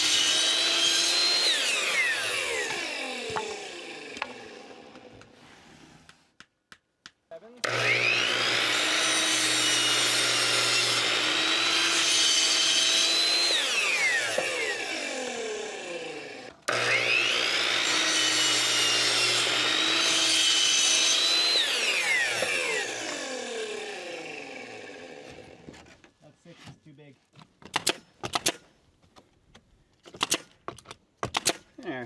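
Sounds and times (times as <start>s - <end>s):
electric saw cutting wood: 0.0s - 5.3s, 7.6s - 25.7s.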